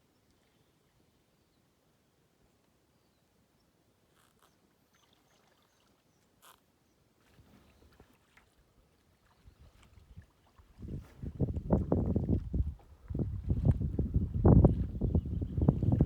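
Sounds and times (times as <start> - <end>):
paddle water drips and splashes: 4.8 - 13.8.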